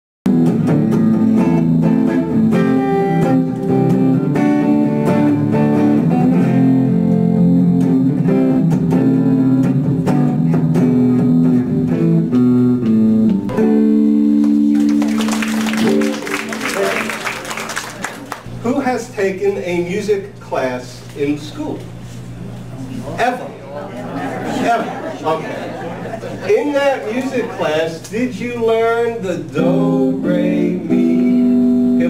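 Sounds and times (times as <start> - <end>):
guitar plucked and strummed: 0.3 - 18.0, 29.5 - 32.0.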